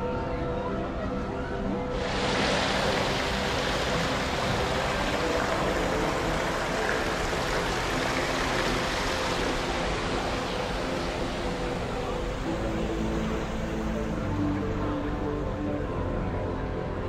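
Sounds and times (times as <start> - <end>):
running water rushing: 1.9 - 15.5.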